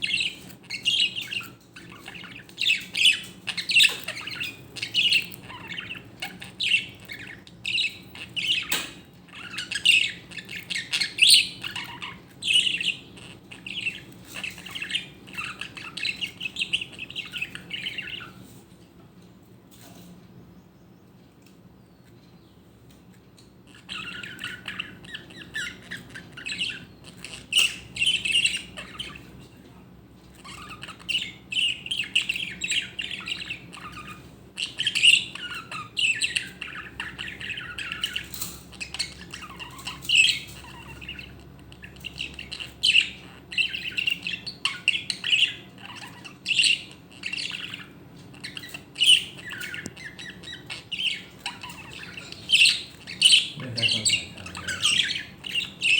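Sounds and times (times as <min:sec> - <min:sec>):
budgerigar chattering and squawking: 0:00.0 - 0:18.4, 0:23.6 - 0:29.6, 0:30.2 - 0:55.9.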